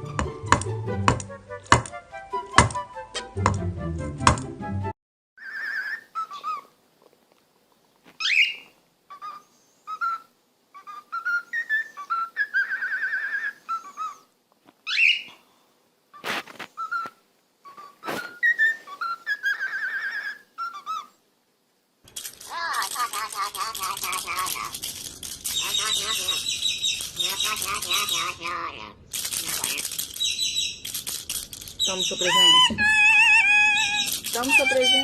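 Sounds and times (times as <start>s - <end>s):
parrot whistling: 8.2s - 14.2s, 16.8s - 21.1s, 25.5s - 28.7s, 29.6s - 30.8s, 31.8s - 35.0s
sharp clicks: 22.0s - 28.3s, 29.1s - 32.3s, 33.7s - 34.9s.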